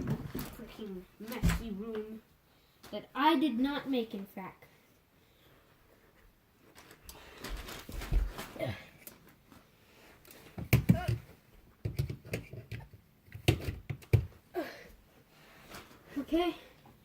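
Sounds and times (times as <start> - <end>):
objects knocking and clattering: 0.0 - 1.7, 10.6 - 14.4.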